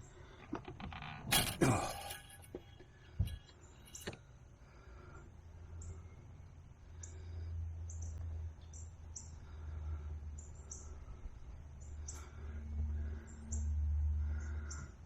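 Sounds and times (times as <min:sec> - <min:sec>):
small birds chirping: 0:07.0 - 0:15.0.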